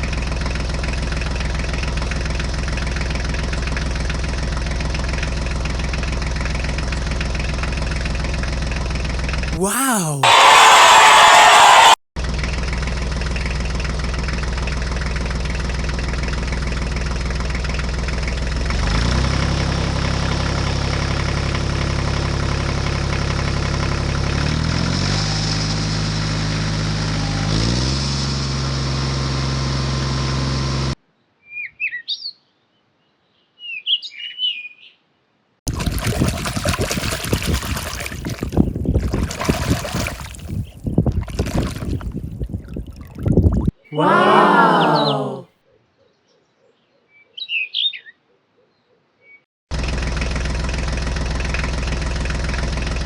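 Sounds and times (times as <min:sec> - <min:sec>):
bird chirping: 0:45.8 - 0:49.4.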